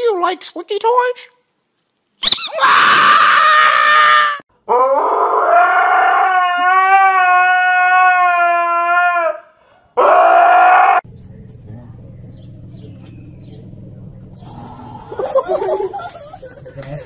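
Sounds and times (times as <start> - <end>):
dog howling: 2.5 - 11.0.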